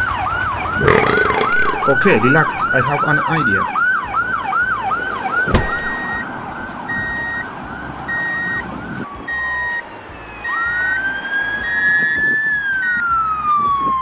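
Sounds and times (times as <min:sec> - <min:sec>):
emergency vehicle siren wailing: 0:00.0 - 0:14.0.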